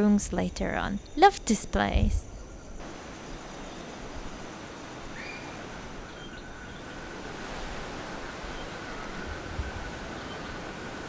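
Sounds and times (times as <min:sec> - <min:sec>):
wind noise: 0:00.0 - 0:11.0
ocean surf washing on shore: 0:02.8 - 0:11.0
faint chirps: 0:05.0 - 0:07.1.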